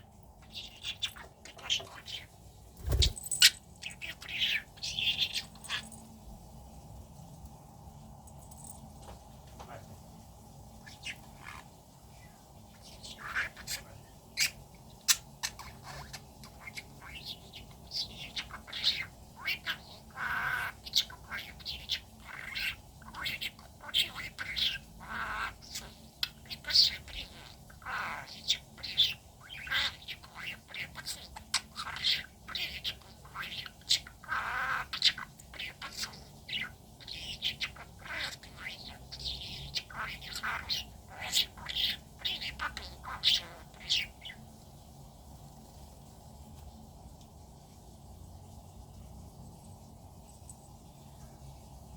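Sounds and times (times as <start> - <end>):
budgerigar chattering: 18.0 - 21.4.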